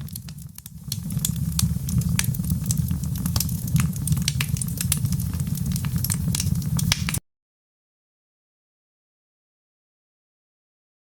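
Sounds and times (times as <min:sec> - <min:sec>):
wood fire crackling: 0:00.0 - 0:07.2.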